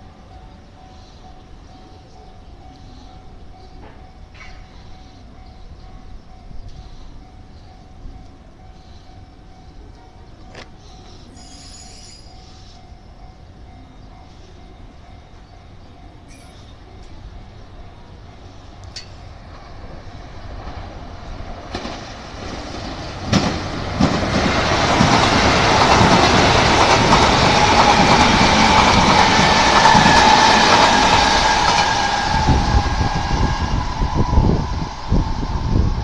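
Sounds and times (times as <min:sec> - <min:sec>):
train wheels rumbling on rail: 0:00.0 - 0:36.0
wheels clacking over rail joints: 0:21.6 - 0:32.4.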